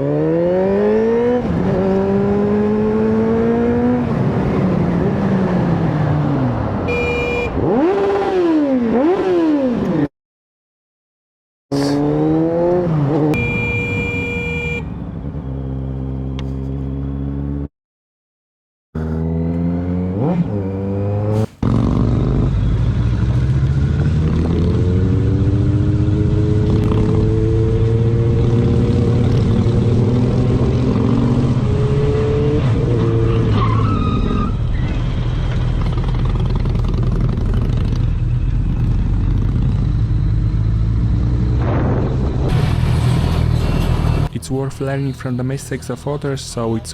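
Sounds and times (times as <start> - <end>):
motorcycle engine accelerating: 0.0 - 10.1, 11.7 - 17.7, 19.0 - 33.6, 34.6 - 44.3
wind and road noise: 0.0 - 10.1, 11.7 - 17.7, 19.0 - 46.9
short high-pitched tone: 13.4 - 14.9.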